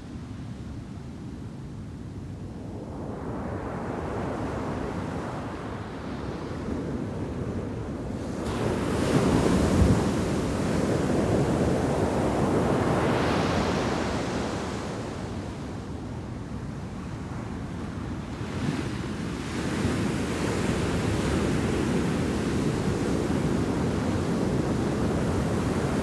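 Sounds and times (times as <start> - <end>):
waves crashing on sand beach: 7.6 - 16.6, 18.5 - 26.0.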